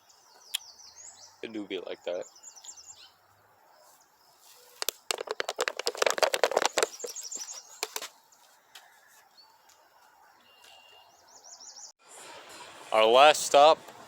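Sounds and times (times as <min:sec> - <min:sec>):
small birds chirping: 0:00.0 - 0:12.0
rapid clicking and crackling: 0:04.8 - 0:08.1.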